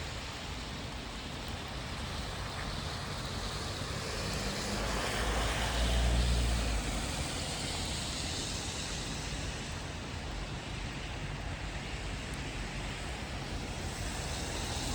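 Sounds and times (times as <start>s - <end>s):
rain falling: 0.0s - 14.9s
passing vehicle rumble: 2.9s - 9.7s.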